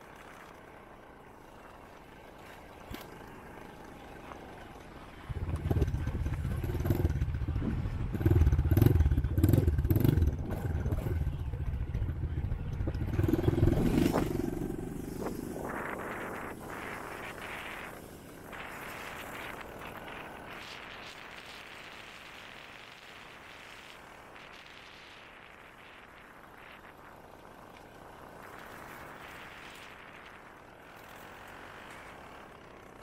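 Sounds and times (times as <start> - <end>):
dirt bike engine revving: 2.8 - 17.5.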